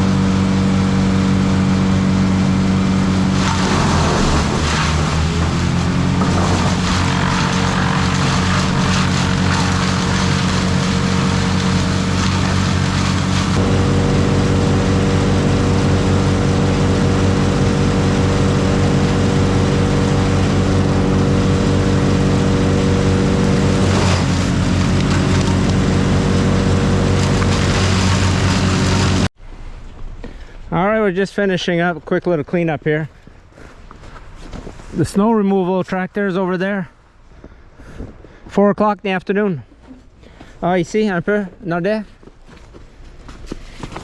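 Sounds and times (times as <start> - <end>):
large engine at high revs: 0.0 - 29.3.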